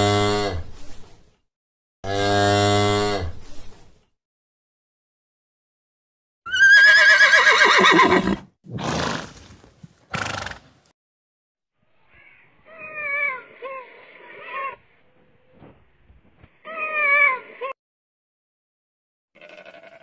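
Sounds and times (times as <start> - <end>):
horse whinnying: 6.5 - 9.5, 19.4 - 20.0
horse snorting: 7.3 - 10.8
bleat-like animal calls: 19.4 - 20.0.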